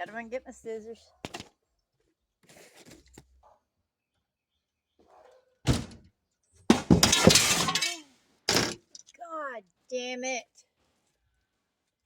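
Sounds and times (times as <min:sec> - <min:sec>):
thud: 0:05.7 - 0:06.0, 0:06.7 - 0:07.9
glass panes falling and shattering: 0:06.7 - 0:09.0.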